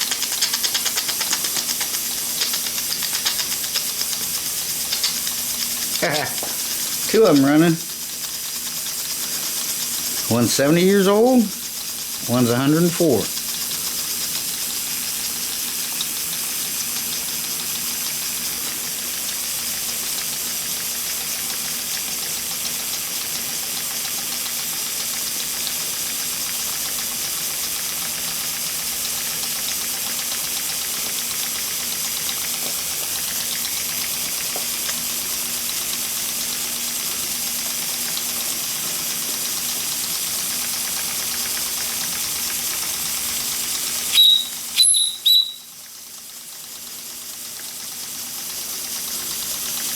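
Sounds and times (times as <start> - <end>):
steam engines hissing: 5.0 - 13.4
loud high-pitched sound: 44.1 - 45.7.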